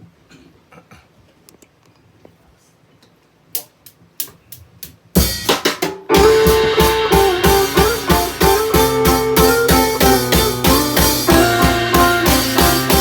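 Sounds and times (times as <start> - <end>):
pop-rock band playing: 6.1 - 13.0.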